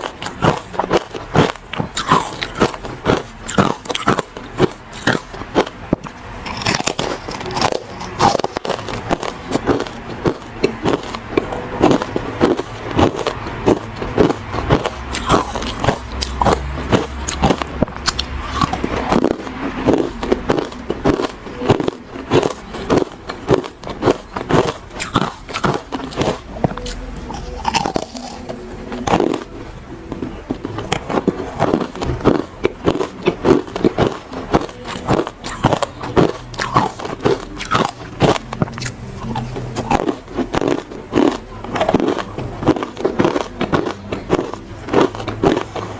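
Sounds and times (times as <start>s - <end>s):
chewing hard ice: 0.0s - 45.9s.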